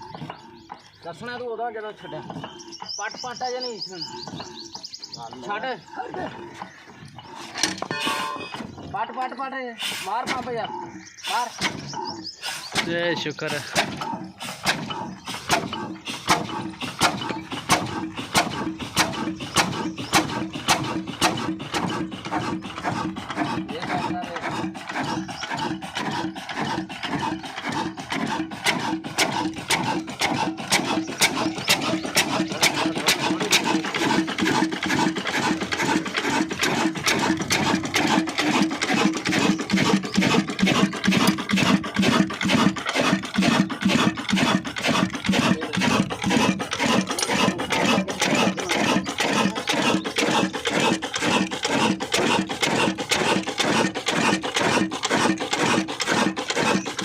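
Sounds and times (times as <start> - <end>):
diesel engine running: 10.1 - 57.0.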